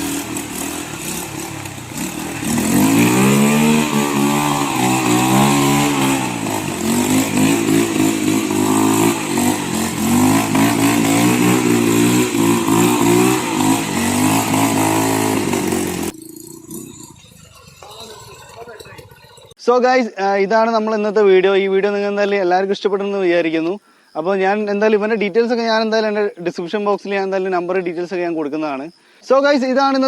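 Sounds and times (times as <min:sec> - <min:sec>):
motorbike engine revving: 0:00.0 - 0:18.2.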